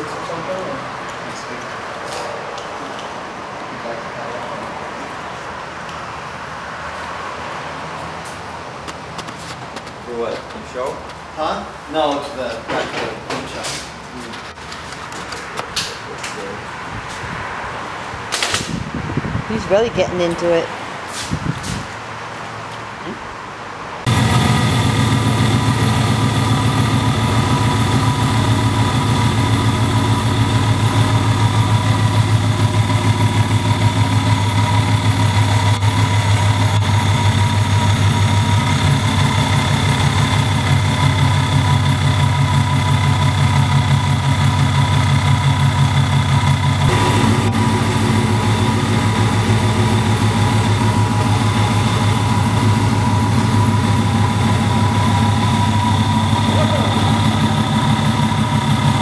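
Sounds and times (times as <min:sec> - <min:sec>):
car engine idling loudly: 0:24.1 - 0:59.0.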